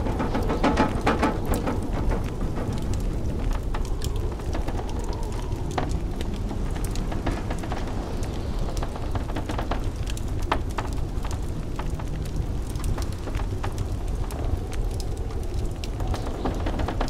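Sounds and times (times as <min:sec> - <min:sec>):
low rumble of blizzard wind: 0:00.0 - 0:17.0
wood fire crackling: 0:00.0 - 0:17.0.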